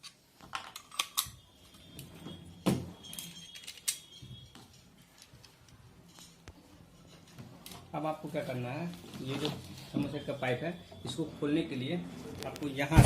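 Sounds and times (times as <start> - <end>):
metal clicks and clinks: 3.0 - 4.2.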